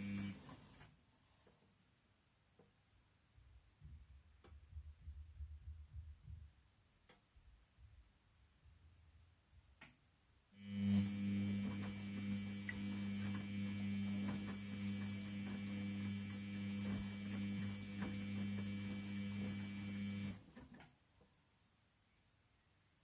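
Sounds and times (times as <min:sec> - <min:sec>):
washing machine humming: 0:00.0 - 0:00.8, 0:10.6 - 0:20.6.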